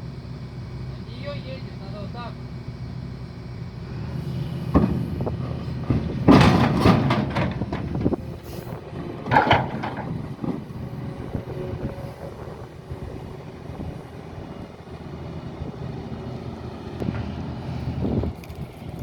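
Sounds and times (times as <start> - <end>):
heavy diesel machinery running: 0.0 - 19.0
metallic clanks and scraping: 4.2 - 14.6.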